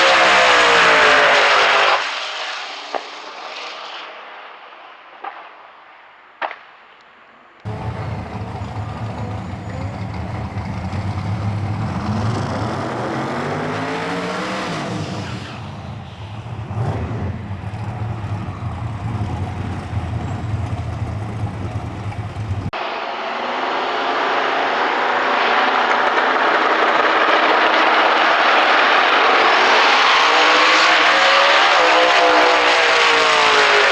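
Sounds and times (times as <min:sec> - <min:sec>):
drag car engine revving: 0:07.7 - 0:33.9.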